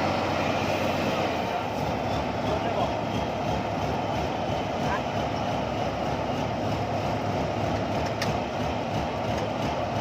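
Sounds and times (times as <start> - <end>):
combine harvester engine running: 0.0 - 10.0.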